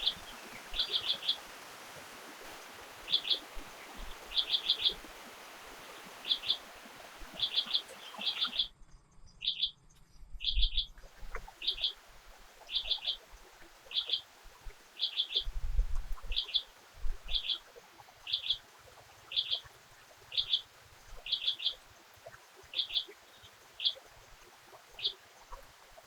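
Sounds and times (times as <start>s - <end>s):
bird chirping: 0.0s - 1.4s, 3.0s - 12.0s, 12.7s - 13.2s, 13.9s - 14.2s, 20.3s - 20.6s, 22.7s - 24.1s
faint steady hiss: 0.0s - 8.7s, 11.0s - 26.0s.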